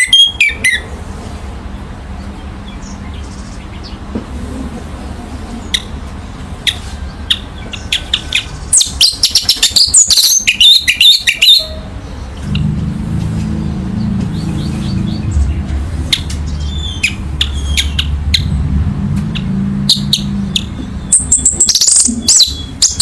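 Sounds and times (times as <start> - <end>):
steady low hum: 11.8 - 22.9.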